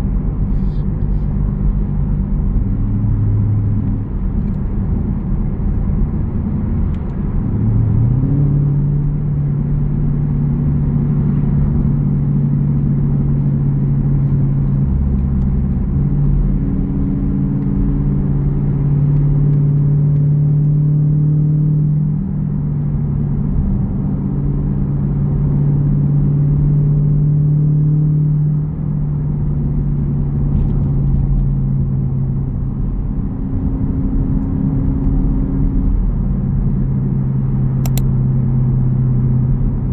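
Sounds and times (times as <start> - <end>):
engine exhaust rumbling: 0.0 - 18.6.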